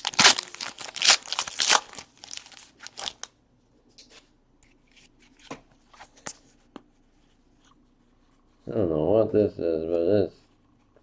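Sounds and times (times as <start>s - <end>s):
card pack wrappers crinkling: 0.0s - 3.3s.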